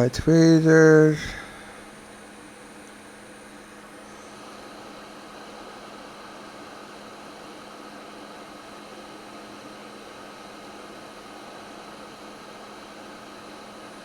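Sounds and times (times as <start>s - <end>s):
constant hum: 0.0s - 4.3s.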